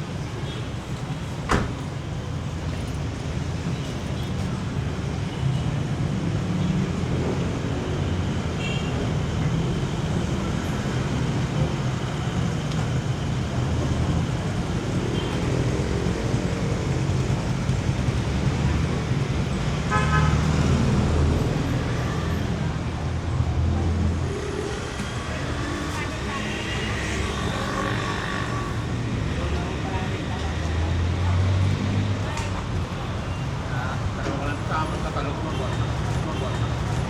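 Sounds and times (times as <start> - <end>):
vehicle engines running: 9.2 - 37.0.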